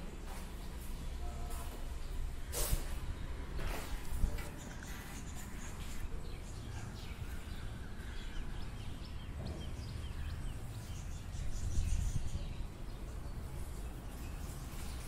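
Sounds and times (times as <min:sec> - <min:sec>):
small birds chirping: 0:00.1 - 0:15.0
wind rumble on microphone: 0:07.0 - 0:15.0.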